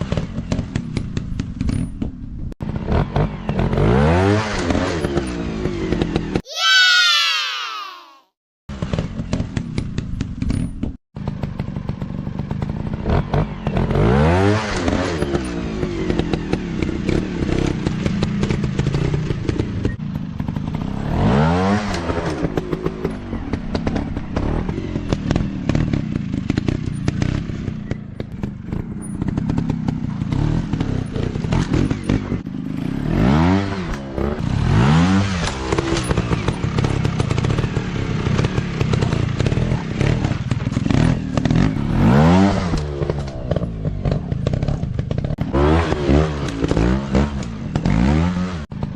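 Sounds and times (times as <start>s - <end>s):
dirt bike engines revving: 12.4s - 48.7s.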